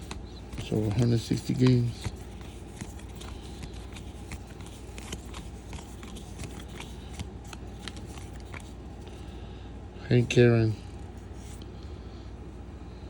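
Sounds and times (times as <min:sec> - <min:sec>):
cards clicking and sliding: 0:00.0 - 0:09.1
steady low hum: 0:00.0 - 0:13.0.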